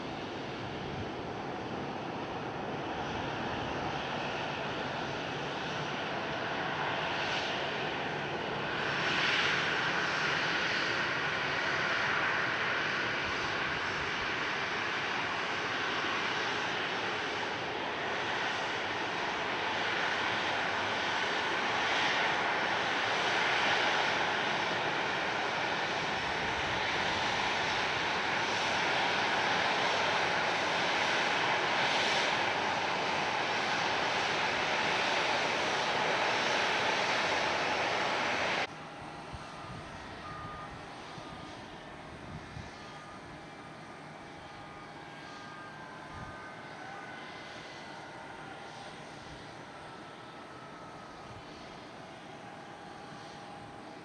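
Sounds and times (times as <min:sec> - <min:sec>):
airliner engines rushing: 0:00.0 - 0:54.0.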